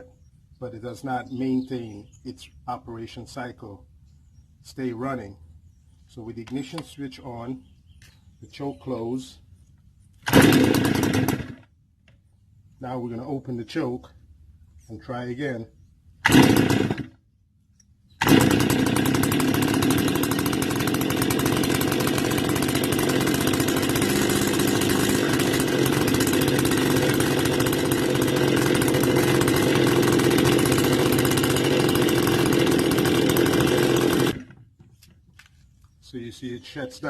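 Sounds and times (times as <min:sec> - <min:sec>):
brush cutter engine idling: 0:10.2 - 0:11.7, 0:16.2 - 0:17.1, 0:18.2 - 0:35.7.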